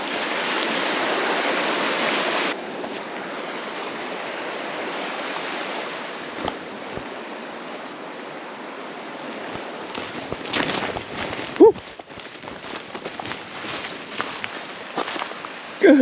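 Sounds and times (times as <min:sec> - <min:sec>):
running water rushing: 0:00.0 - 0:16.0.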